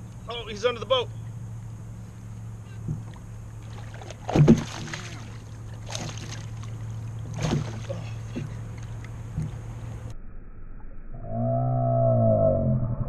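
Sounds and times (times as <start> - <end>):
steady low hum: 0.0 - 13.0
water splashing: 2.9 - 10.1
knocks on boat side: 4.3 - 5.0, 7.3 - 8.6.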